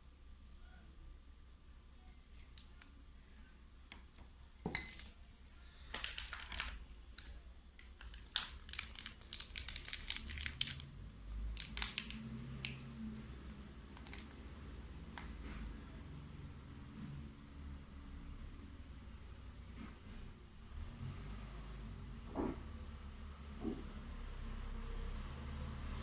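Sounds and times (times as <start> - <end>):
plastic piping bag crinkling: 2.3 - 3.0, 4.0 - 7.0, 7.7 - 15.3.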